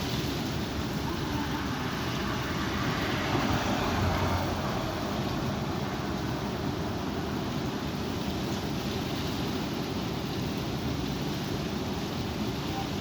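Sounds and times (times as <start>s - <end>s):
strong wind blowing: 0.0s - 8.3s.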